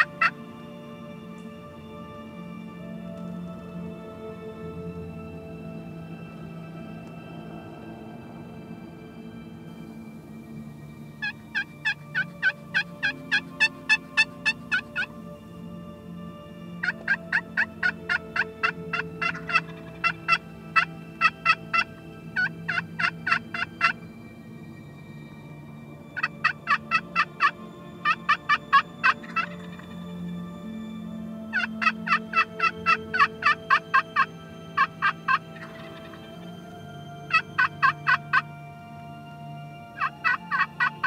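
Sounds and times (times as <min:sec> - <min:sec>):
wild turkey yelping: 0:00.0 - 0:00.3, 0:11.2 - 0:15.1, 0:16.8 - 0:24.0, 0:26.2 - 0:29.8, 0:31.5 - 0:36.2, 0:37.3 - 0:38.4, 0:40.0 - 0:41.0.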